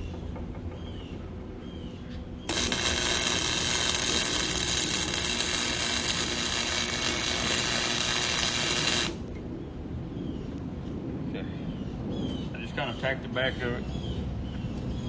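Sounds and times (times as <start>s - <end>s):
welding arc sizzling and crackling: 2.5s - 9.3s.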